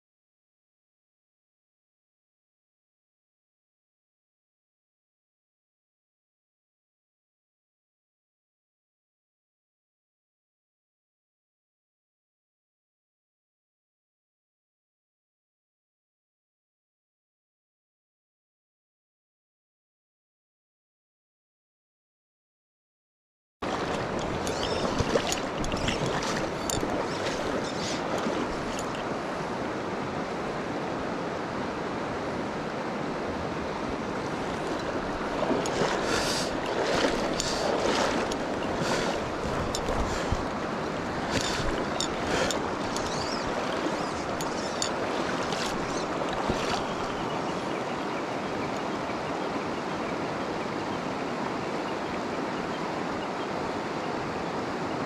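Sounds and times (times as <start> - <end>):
stream rushing: 23.6 - 55.0.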